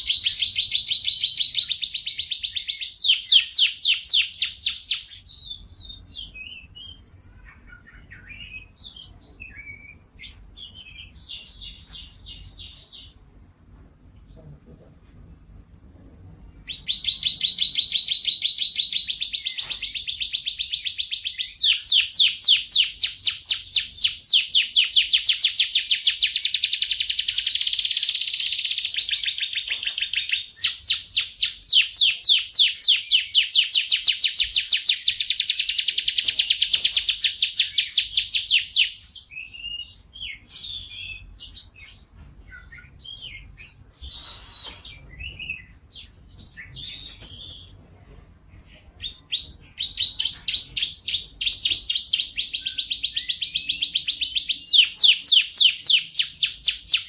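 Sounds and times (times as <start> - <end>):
soft chirps: 0.0 - 13.2
canary singing trills: 0.0 - 13.3, 16.5 - 47.8, 48.5 - 57.0.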